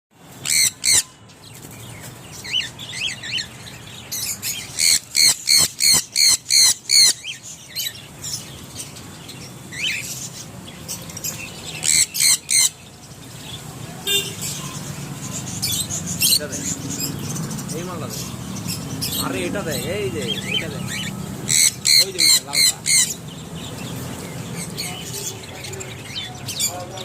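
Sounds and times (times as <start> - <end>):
birds squawking: 0.3 - 27.0.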